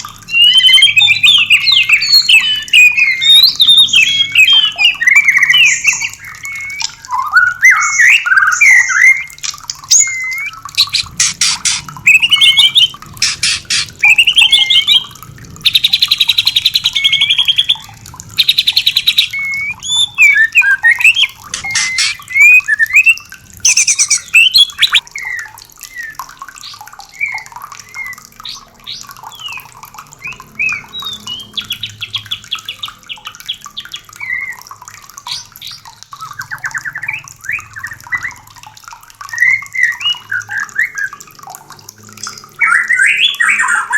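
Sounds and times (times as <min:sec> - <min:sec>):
bird singing whistled phrases: 0:00.3 - 0:28.3, 0:29.3 - 0:32.9, 0:34.2 - 0:34.6, 0:39.3 - 0:41.2
bird dry rattling chatters: 0:09.4 - 0:14.1, 0:21.4 - 0:22.6.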